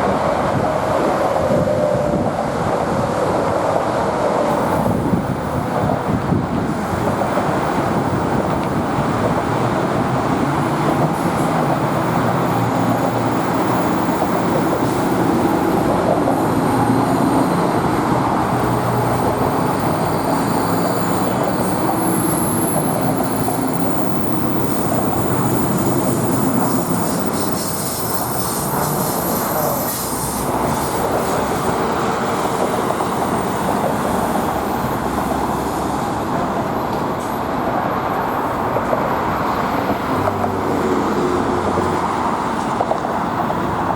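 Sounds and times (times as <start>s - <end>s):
train rumble: 0.0s - 43.9s
train wheels squealing on rails: 0.0s - 43.9s.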